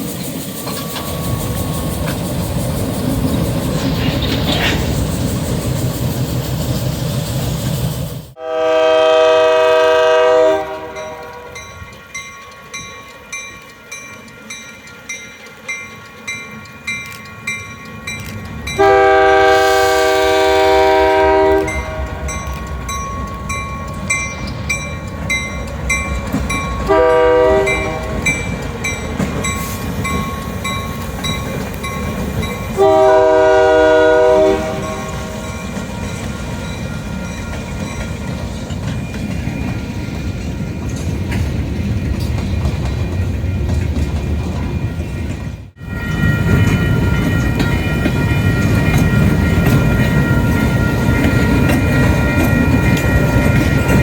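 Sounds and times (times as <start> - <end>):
train running rumble: 0.0 - 54.0
train wheels clicking on rails: 0.0 - 54.0
locomotive air horn blasts: 8.4 - 11.6, 18.8 - 22.4, 26.9 - 28.3, 32.8 - 35.5.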